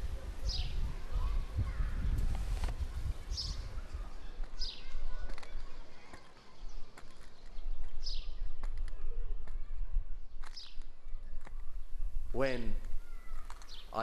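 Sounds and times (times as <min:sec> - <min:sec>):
bird chirping: 0:03.2 - 0:14.0.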